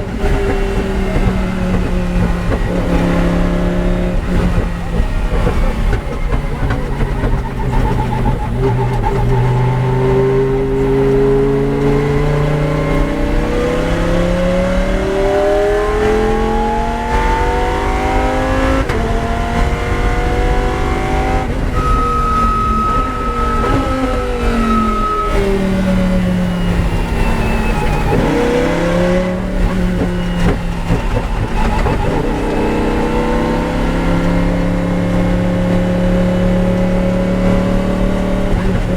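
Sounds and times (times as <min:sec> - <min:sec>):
race car engine accelerating: 0:00.0 - 0:38.9
high whine: 0:19.0 - 0:35.5.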